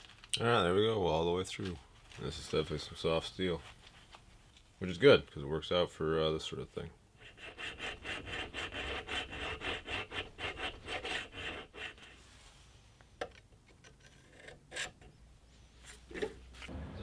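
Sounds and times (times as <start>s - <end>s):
hand tool scraping steel: 13.8s - 15.2s.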